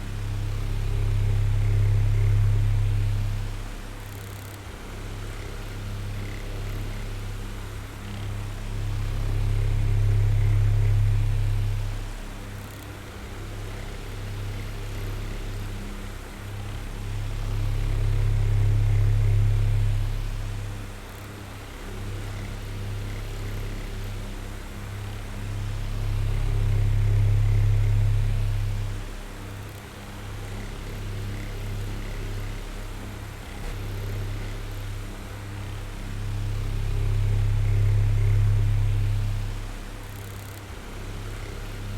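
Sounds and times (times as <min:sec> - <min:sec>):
electric fan running: 0:00.0 - 0:41.9.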